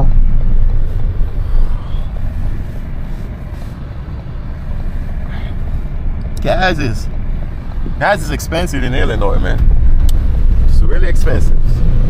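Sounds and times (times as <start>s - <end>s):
truck engine and tyres rumbling: 0.0s - 12.0s.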